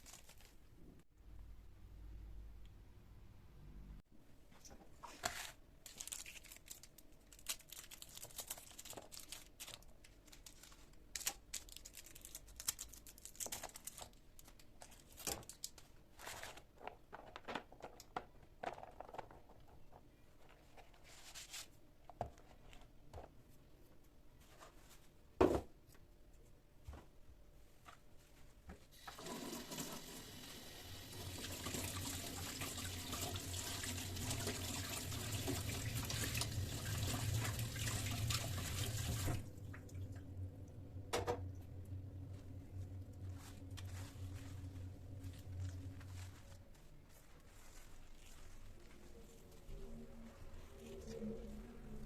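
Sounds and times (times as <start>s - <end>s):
rustling and crinkling: 0.0s - 1.0s, 4.4s - 28.9s, 42.2s - 52.0s.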